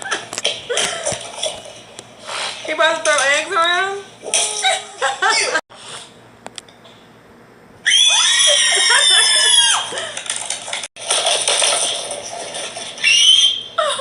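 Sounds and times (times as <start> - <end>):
high-pitched human scream: 7.8 - 9.9, 13.0 - 13.8
breathy shriek: 7.8 - 10.0.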